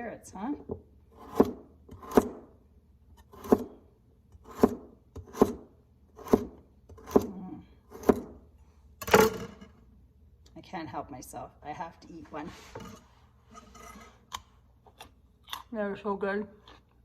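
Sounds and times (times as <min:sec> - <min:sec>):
knife cutting carrot on board: 0:01.1 - 0:02.4, 0:03.2 - 0:05.6, 0:06.2 - 0:08.4.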